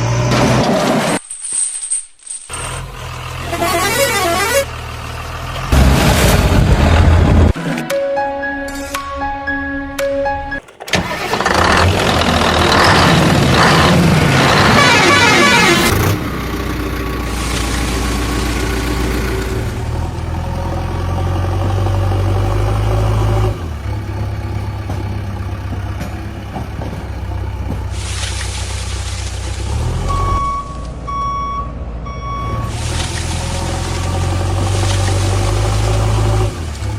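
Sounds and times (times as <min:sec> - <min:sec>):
heavy vehicle engine running: 0:02.5 - 0:36.9
short horn beeps: 0:03.4 - 0:04.7.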